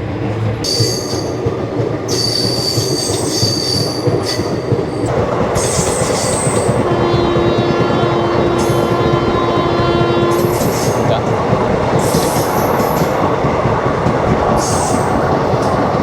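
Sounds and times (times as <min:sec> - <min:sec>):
train coach rumbling: 0:00.0 - 0:16.0
train wheels squealing: 0:00.6 - 0:01.4, 0:02.1 - 0:06.8, 0:12.0 - 0:13.1, 0:14.6 - 0:15.7
steady horn tone: 0:06.7 - 0:11.3.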